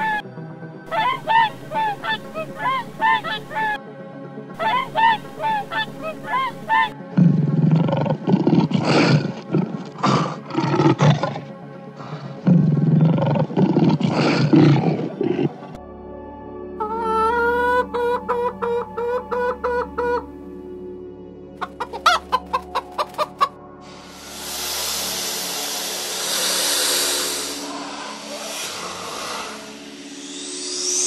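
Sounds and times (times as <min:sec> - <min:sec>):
lion roaring: 0:07.2 - 0:15.8
waterfowl honking: 0:16.8 - 0:20.3, 0:21.6 - 0:23.5.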